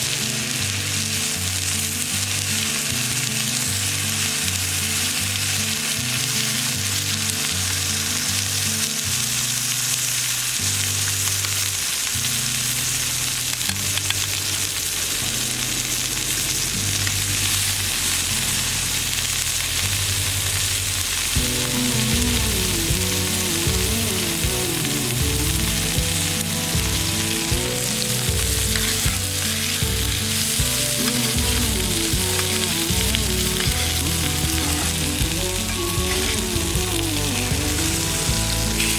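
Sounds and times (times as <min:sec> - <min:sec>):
background music: 0:00.0 - 0:38.9
steak sizzling in a pan: 0:00.0 - 0:38.9.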